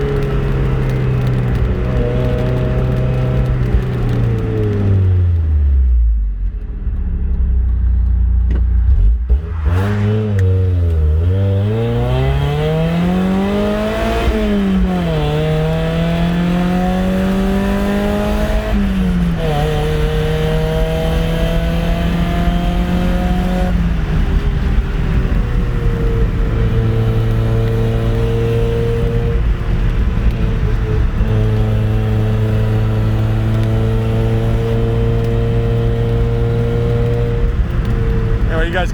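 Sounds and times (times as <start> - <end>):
car engine revving through gears: 0.0 - 38.9.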